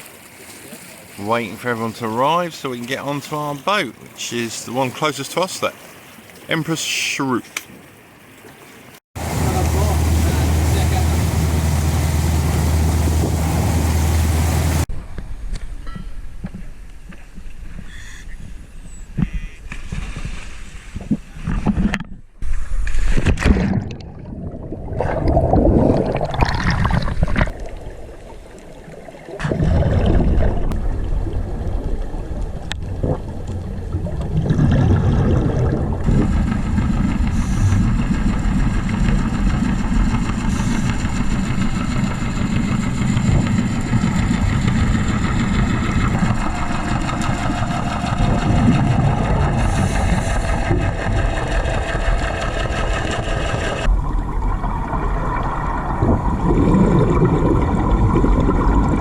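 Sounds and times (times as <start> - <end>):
boat engine humming: 7.8 - 14.9, 30.3 - 59.0.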